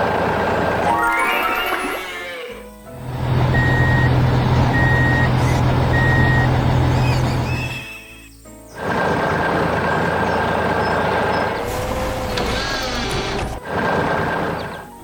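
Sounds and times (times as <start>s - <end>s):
truck engine rumbling: 2.9s - 7.8s, 8.8s - 14.8s
reversing alarm beeps: 3.6s - 7.8s.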